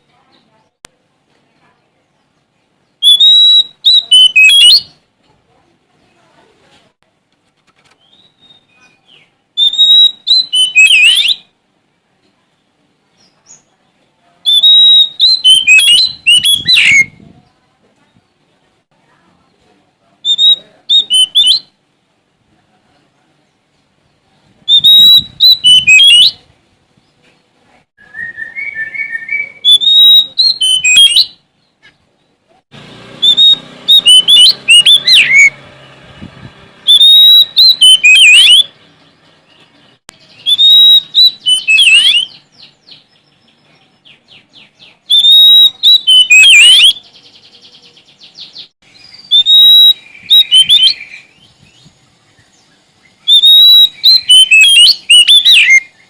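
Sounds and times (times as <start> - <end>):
songbird singing warbling phrases: 0.0 - 6.5, 7.9 - 11.6, 12.2 - 18.5, 19.1 - 21.8, 22.9 - 32.6, 33.2 - 56.0
bird chattering calls: 33.2 - 35.6, 36.8 - 38.7, 53.2 - 56.0.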